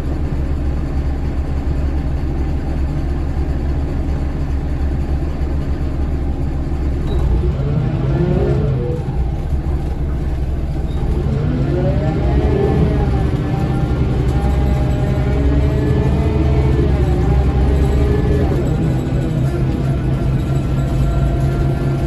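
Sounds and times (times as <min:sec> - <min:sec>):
bus diesel engine running: 0:00.0 - 0:22.0
engine whine accelerating: 0:06.9 - 0:22.0.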